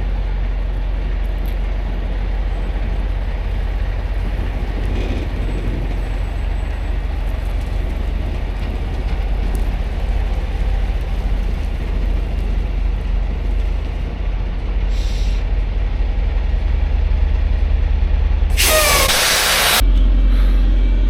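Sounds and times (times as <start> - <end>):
truck diesel engine droning: 0.0 - 21.0
air brakes hissing: 14.9 - 15.5, 18.5 - 20.8.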